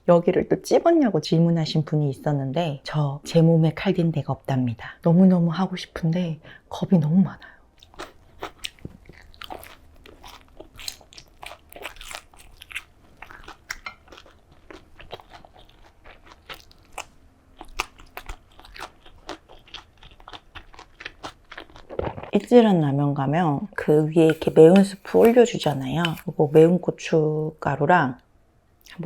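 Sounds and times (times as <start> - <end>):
person chewing crisp food: 7.8 - 22.3, 24.3 - 26.7.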